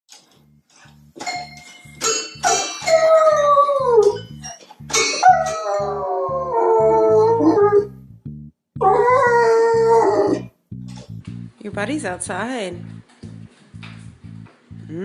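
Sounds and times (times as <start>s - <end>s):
background music with low beat: 0.1s - 15.0s
dog howling: 5.2s - 7.9s, 8.8s - 10.5s.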